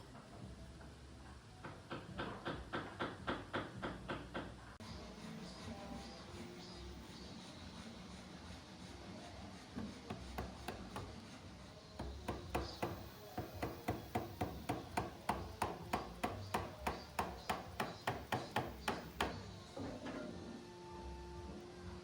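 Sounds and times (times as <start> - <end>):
mallet striking a chisel: 10.1 - 11.1, 12.0 - 19.5.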